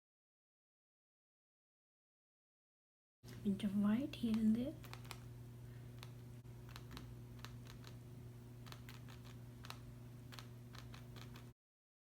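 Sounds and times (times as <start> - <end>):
low electrical hum: 3.2 - 11.6.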